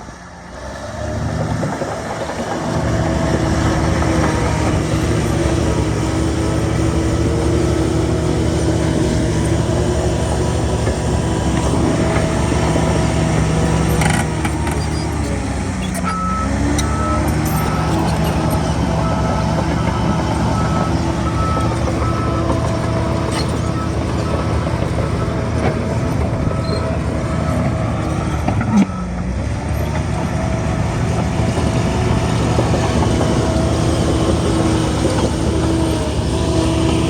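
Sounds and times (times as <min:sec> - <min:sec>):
heavy diesel engine working: 0:00.0 - 0:37.0
reversing alarm beeping: 0:16.0 - 0:29.2.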